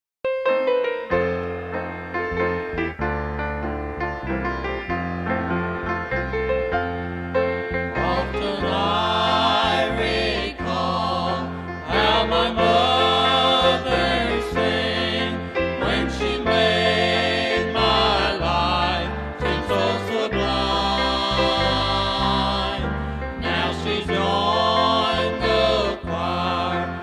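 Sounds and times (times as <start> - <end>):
piano: 0.2 - 27.0
bass line: 1.2 - 27.0
vocal group singing in harmony: 7.9 - 27.0.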